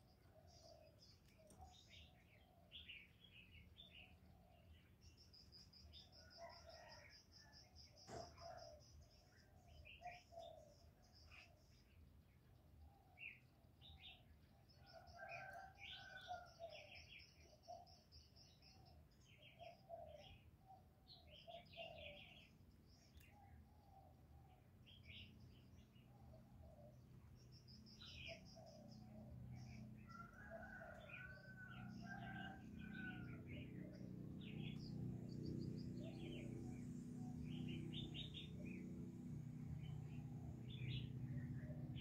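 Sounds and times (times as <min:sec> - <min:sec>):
small birds chirping and trilling: 0:00.0 - 0:42.0
low hum: 0:32.0 - 0:42.0.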